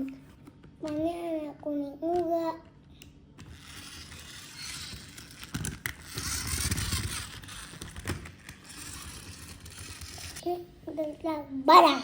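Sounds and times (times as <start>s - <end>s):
plastic toy scraping and rattling: 3.4s - 10.4s.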